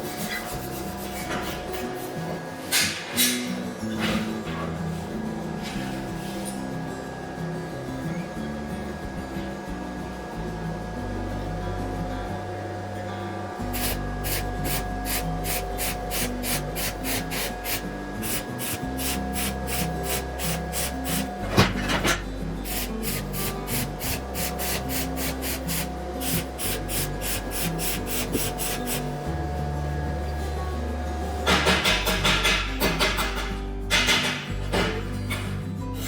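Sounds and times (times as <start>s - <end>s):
hand file rasping: 0.0s - 2.1s, 13.8s - 21.5s, 22.7s - 29.2s.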